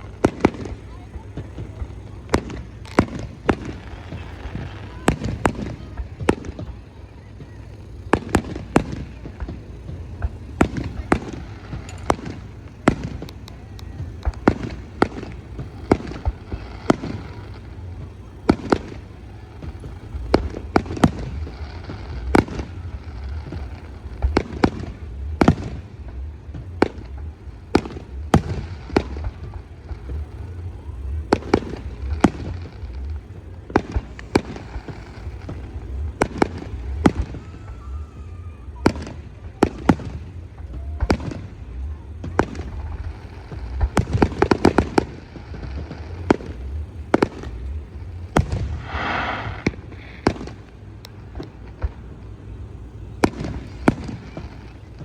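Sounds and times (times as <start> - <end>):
continuous low rumble: 0.0 - 55.0
fireworks bangs: 0.0 - 55.0.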